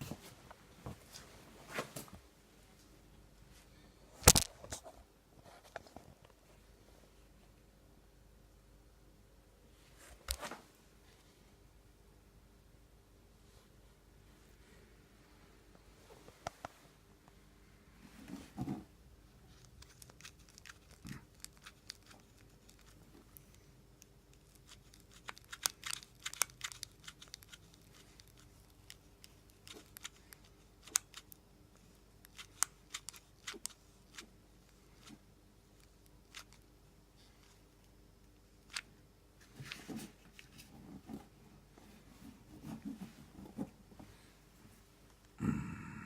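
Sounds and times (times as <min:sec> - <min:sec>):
faint steady hum: 0:00.0 - 0:46.0
clicks and crackles of small parts: 0:04.2 - 0:04.8, 0:19.5 - 0:31.4, 0:32.2 - 0:34.3.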